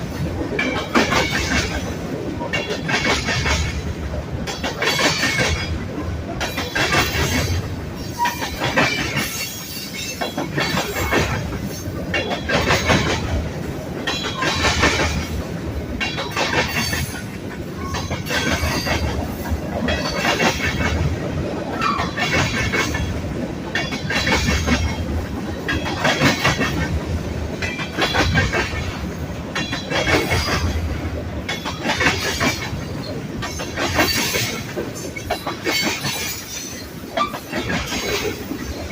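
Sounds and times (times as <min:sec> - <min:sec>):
train wheels clacking over rail joints: 0:00.0 - 0:38.9
train wheel squeals: 0:06.6 - 0:13.0, 0:16.1 - 0:20.7, 0:21.7 - 0:23.0, 0:31.6 - 0:38.9.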